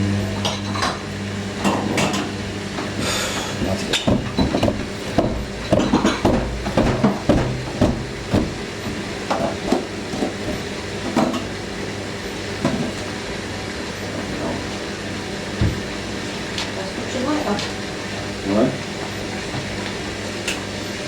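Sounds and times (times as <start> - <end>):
motor hum: 0.0 - 11.6
washing machine drum knocking: 3.6 - 11.6, 15.6 - 15.9.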